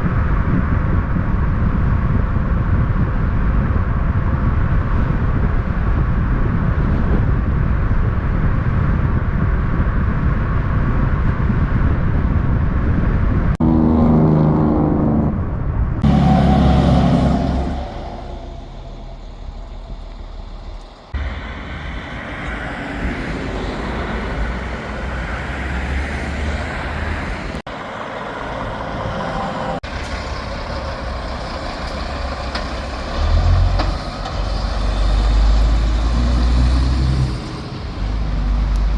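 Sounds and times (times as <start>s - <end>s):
diesel truck engines running: 0.1s - 38.9s
engine pitched note: 13.6s - 22.1s.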